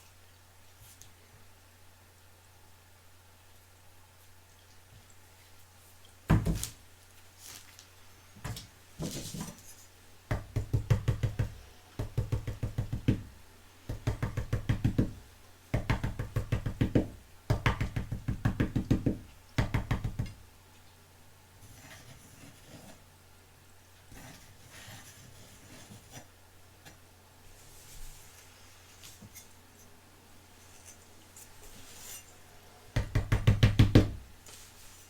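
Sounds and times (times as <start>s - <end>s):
rapid hard tapping: 10.3s - 13.3s, 13.9s - 15.2s.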